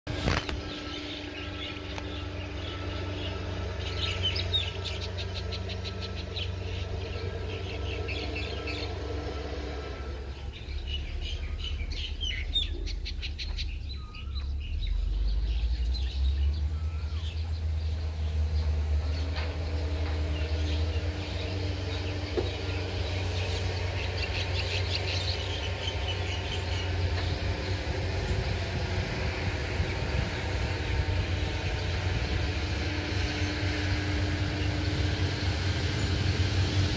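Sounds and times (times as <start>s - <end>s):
small birds chirping: 0.1s - 9.1s, 10.4s - 32.7s
low engine hum: 0.1s - 36.9s.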